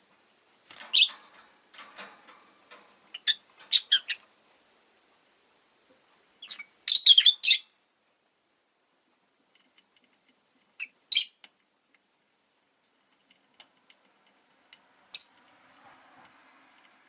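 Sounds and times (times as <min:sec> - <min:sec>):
lovebirds chirping: 0:03.1 - 0:04.3, 0:06.4 - 0:07.8, 0:10.8 - 0:11.4, 0:15.1 - 0:15.4.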